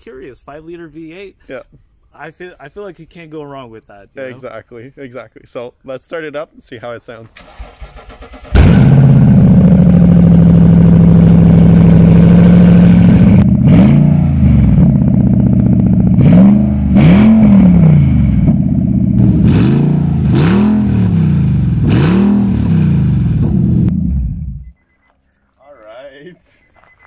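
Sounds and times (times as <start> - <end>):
car engine idling and revving: 7.5 - 24.8.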